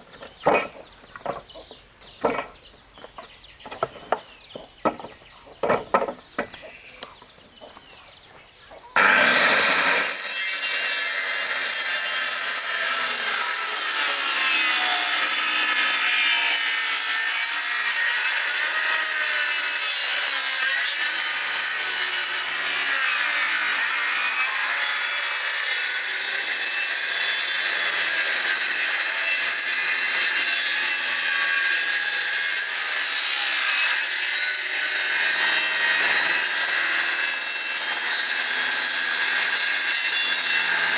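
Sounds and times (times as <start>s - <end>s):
power tool cutting wood: 9.0s - 40.9s.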